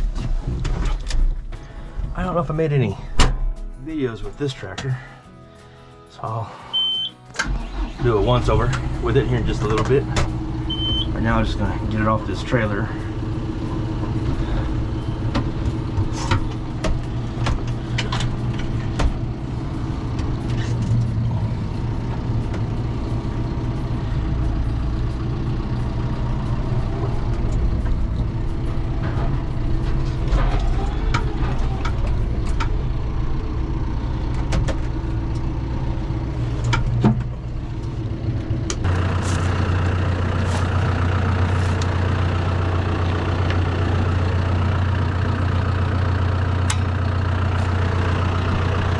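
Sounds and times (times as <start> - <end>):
tractor diesel engine running: 0.0 - 48.9
metal clanks and knocks: 9.6 - 10.6, 26.3 - 32.9.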